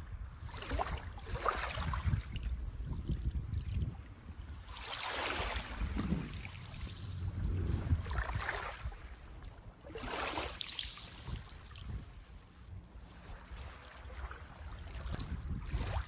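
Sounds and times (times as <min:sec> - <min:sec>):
low rumble of surf: 0:00.0 - 0:16.0
small waves washing up beach: 0:04.1 - 0:09.1, 0:09.8 - 0:12.4.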